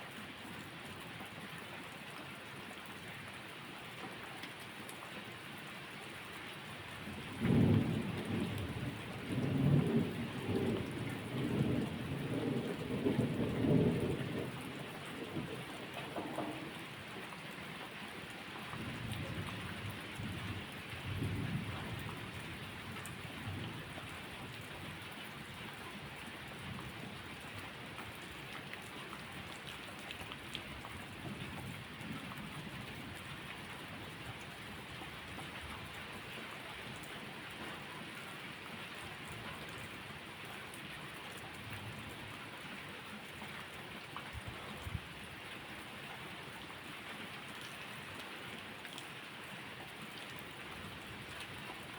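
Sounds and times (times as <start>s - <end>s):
steady rain falling: 0.0s - 51.9s
thunder rumbling: 7.4s - 16.8s.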